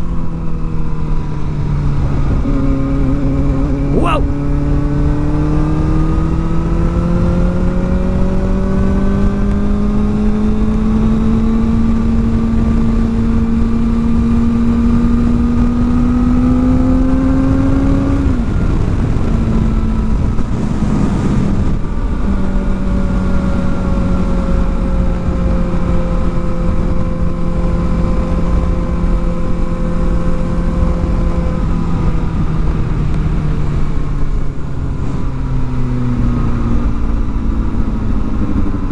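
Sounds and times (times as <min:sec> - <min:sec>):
motorcycle engine revving: 0:01.7 - 0:20.5.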